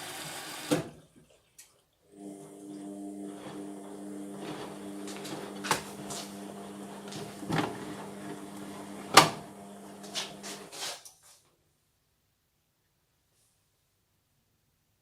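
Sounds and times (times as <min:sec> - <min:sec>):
washing machine motor hum: 0:02.1 - 0:10.9.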